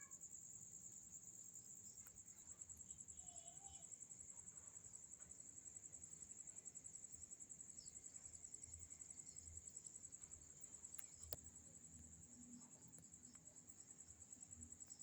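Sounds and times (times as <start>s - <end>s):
crickets trilling: 0.0s - 15.0s
faint click: 10.9s - 11.5s.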